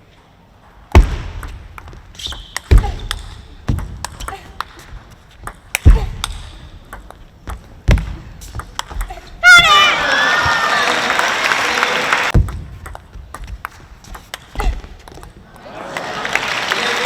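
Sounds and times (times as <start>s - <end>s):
ping pong ball clicking: 5.4s - 7.6s.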